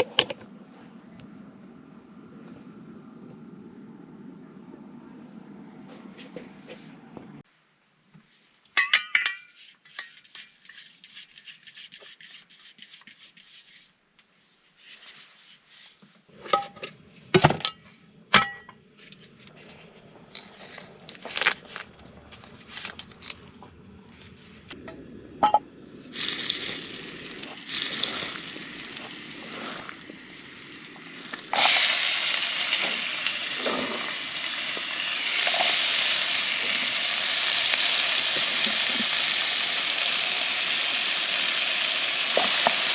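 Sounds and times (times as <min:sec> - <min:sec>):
utensils clinking on cookware: 0:08.8 - 0:10.8
food sizzling in a pan: 0:26.1 - 0:42.9.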